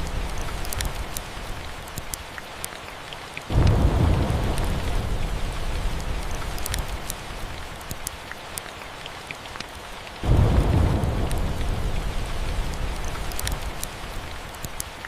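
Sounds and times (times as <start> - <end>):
steady rain: 0.0 - 15.0
wood fire popping and crackling: 0.0 - 15.0
low thunder rumble: 3.5 - 7.8, 10.2 - 14.2.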